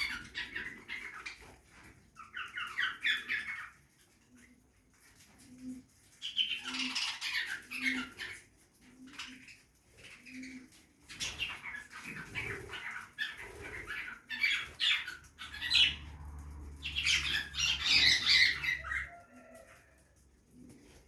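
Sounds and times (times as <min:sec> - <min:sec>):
budgerigars chirping: 0:00.0 - 0:01.5, 0:02.2 - 0:03.8, 0:06.2 - 0:08.4, 0:10.4 - 0:16.1, 0:16.8 - 0:19.2.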